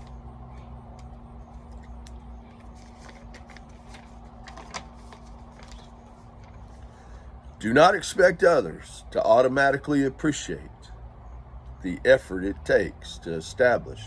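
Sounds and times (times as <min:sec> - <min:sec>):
rustles: 0:00.0 - 0:07.4
low background hum: 0:00.0 - 0:14.0.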